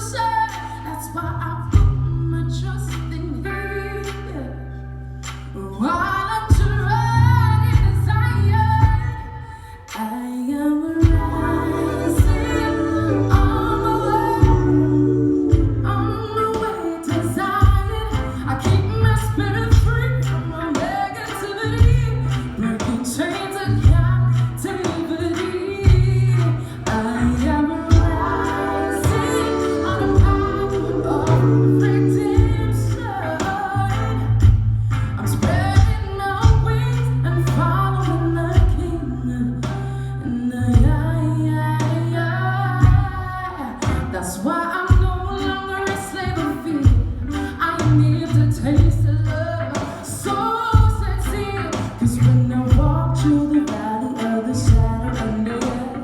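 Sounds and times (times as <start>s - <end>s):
low bass notes: 0.0s - 9.3s, 11.0s - 20.7s, 25.9s - 44.2s, 50.8s - 53.6s
woman singing soul song: 0.0s - 56.0s.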